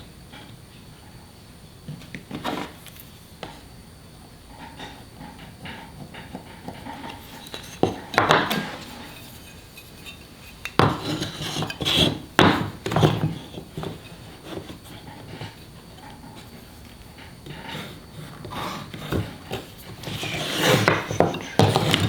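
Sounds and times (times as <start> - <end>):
hard objects knocking on workbench: 6.1 - 9.1, 10.7 - 14.8, 18.4 - 22.0.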